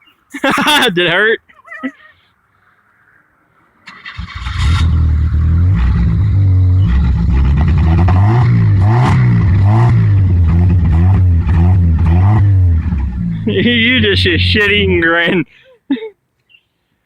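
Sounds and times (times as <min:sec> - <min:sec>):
truck engine revving: 0:03.9 - 0:15.1.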